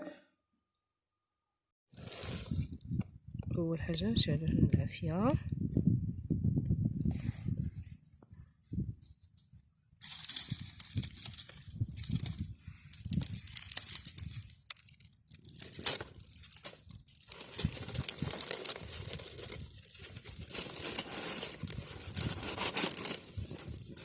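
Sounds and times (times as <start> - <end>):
dry twigs rustling and crackling: 10.0 - 24.0.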